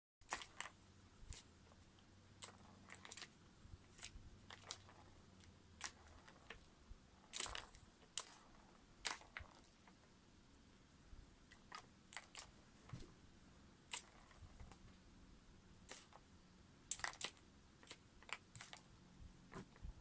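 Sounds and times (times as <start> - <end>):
faint sharp clicks and crunches: 16.9 - 18.9.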